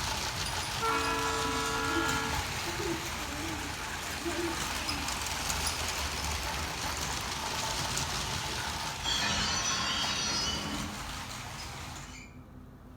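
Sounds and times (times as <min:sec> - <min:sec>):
toy train rattling on track: 0:00.0 - 0:12.4
high squeal: 0:09.0 - 0:12.4.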